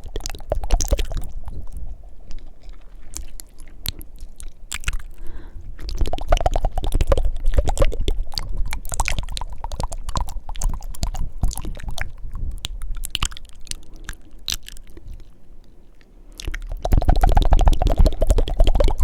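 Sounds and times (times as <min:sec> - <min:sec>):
lip smacks: 0:00.0 - 0:19.0
tongue clicks: 0:00.0 - 0:19.0.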